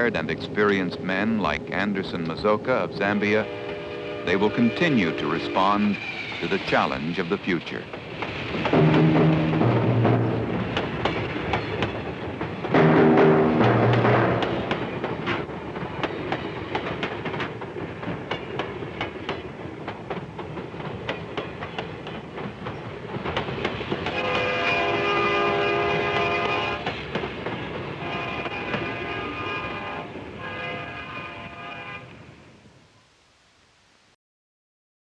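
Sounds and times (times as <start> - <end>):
train wheels clicking over rail joints: 0.0 - 31.7
locomotive air horn blasts: 3.3 - 5.7, 24.1 - 26.8, 28.0 - 32.1.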